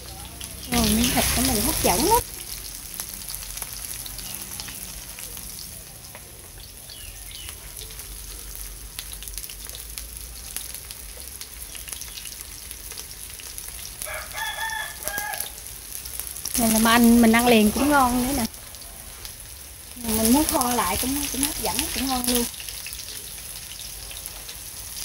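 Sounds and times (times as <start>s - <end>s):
food sizzling in hot oil: 0.0s - 25.0s
rooster crowing: 14.0s - 15.7s.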